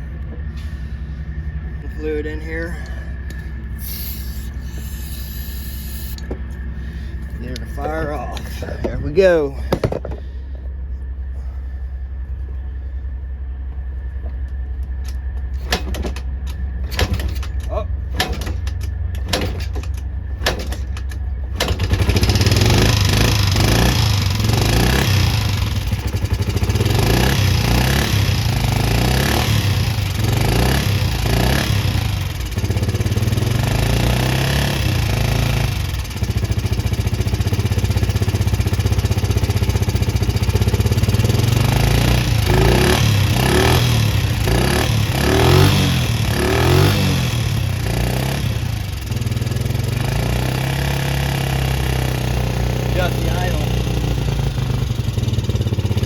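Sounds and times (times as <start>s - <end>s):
small atv engine revving: 2.6s - 6.5s, 16.8s - 56.0s.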